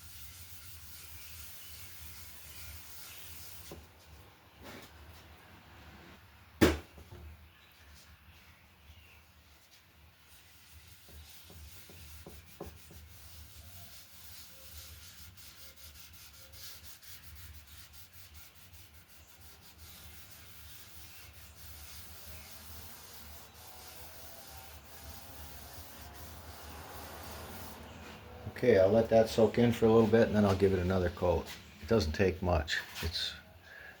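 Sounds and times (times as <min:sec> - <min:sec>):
cloth rubbing on wood: 0:09.5 - 0:31.8.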